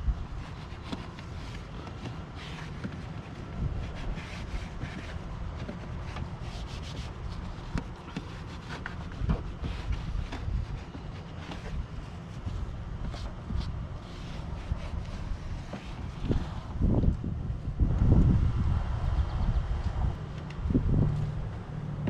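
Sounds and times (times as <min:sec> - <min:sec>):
brush scrubbing surfaces: 0:00.3 - 0:16.8
low rumble: 0:13.8 - 0:22.0.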